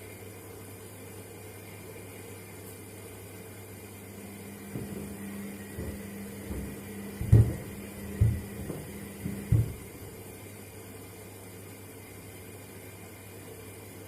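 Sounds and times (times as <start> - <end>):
washing machine motor hum: 0.0 - 14.0
shoes thumping in drum: 4.6 - 10.1.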